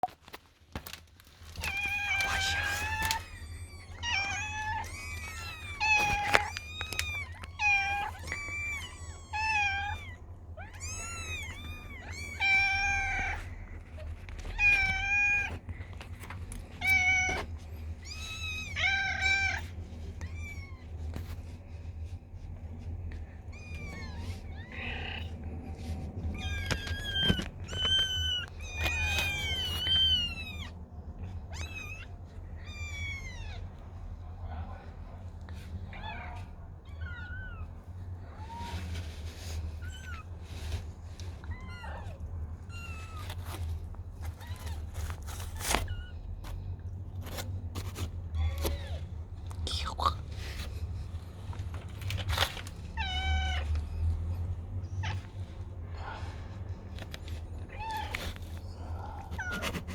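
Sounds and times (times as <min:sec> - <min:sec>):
cat meowing: 0:01.5 - 0:15.6, 0:16.8 - 0:21.1, 0:23.5 - 0:25.4, 0:26.2 - 0:30.8, 0:31.5 - 0:33.8, 0:41.4 - 0:46.3, 0:52.8 - 0:54.0.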